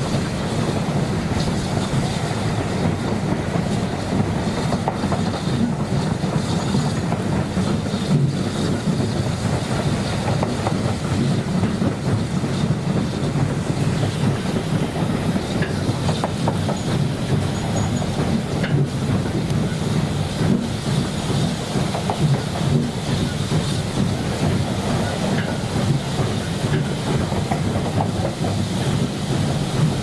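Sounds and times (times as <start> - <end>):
train wheels rumbling on track: 0.0 - 30.0
faint rail joint clicks: 14.2 - 29.9.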